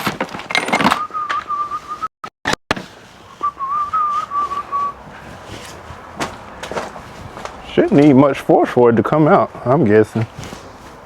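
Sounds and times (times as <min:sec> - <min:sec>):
man whistling a tune: 0:00.9 - 0:02.1, 0:03.4 - 0:05.0.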